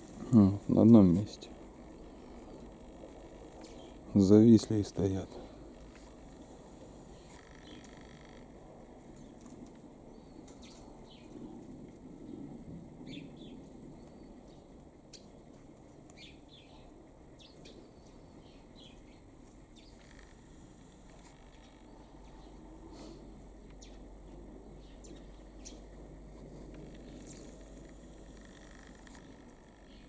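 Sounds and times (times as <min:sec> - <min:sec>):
low steady rumble: 0:00.0 - 0:30.0
bird chirps: 0:10.1 - 0:11.4.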